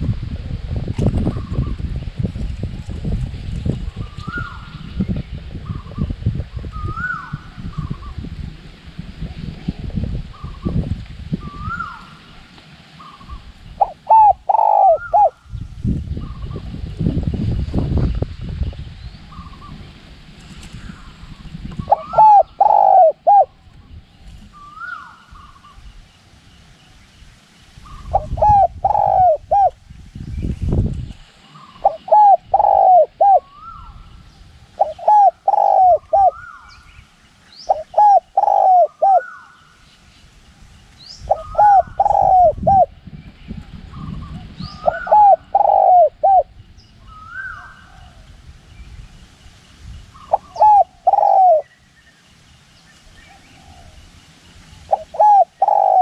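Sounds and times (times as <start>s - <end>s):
wind rumble on microphone: 0.0s - 56.0s
other birds chirping: 11.4s - 15.6s, 20.6s - 48.3s, 48.9s - 56.0s
dove cooing: 13.1s - 15.4s, 21.8s - 23.6s, 28.0s - 29.8s, 31.5s - 34.0s, 34.8s - 36.7s, 37.7s - 39.6s, 41.3s - 43.0s, 44.0s - 46.5s, 50.3s - 51.7s, 54.9s - 56.0s.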